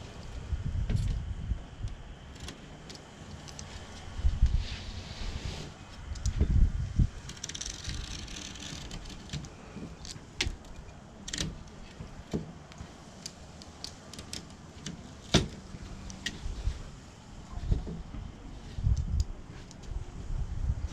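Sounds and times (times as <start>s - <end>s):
low handling rumble: 0.0s - 20.9s
clicks and knocks of tools and frame: 7.2s - 16.5s.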